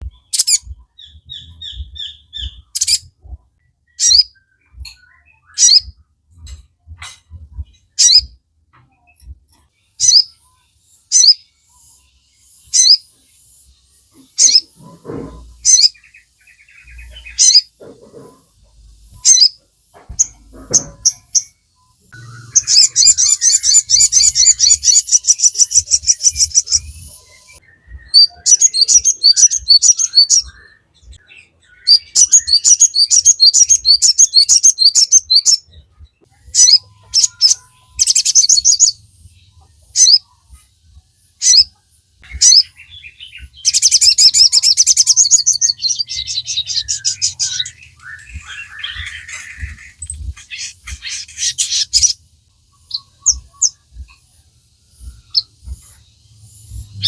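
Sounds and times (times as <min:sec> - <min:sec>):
songbird chirps and trill: 0:00.0 - 0:57.0.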